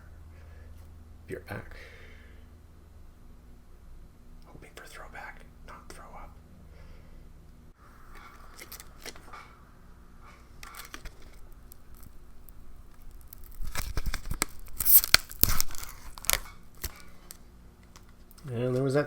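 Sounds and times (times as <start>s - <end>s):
packet rustling: 8.2s - 9.3s, 10.6s - 18.3s
packet tearing: 10.6s - 18.1s.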